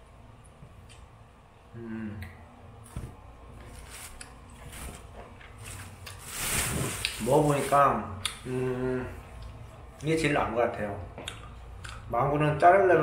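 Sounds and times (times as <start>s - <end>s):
person humming: 1.7s - 2.4s.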